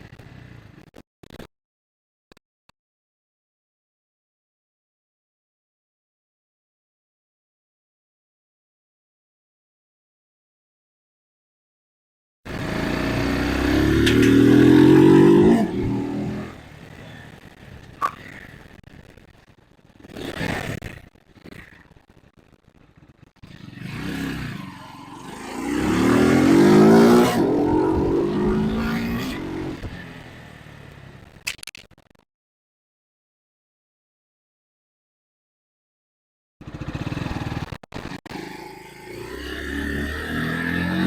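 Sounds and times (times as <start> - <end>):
motorcycle engine accelerating: 12.5 - 16.8, 23.4 - 30.4, 36.6 - 41.0.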